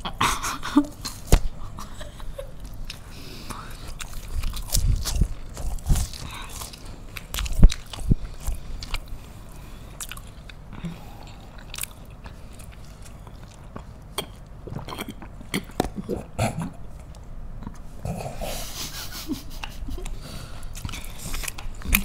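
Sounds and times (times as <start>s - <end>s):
wet chewing with mouth clicks: 2.6s - 16.3s, 19.6s - 22.0s.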